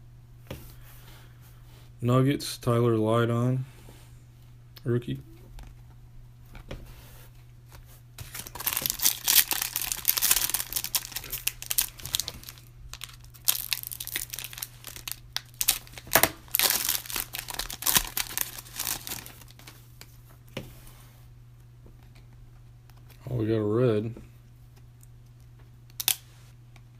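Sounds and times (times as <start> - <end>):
foil wrapper crinkling and tearing: 8.2 - 19.8.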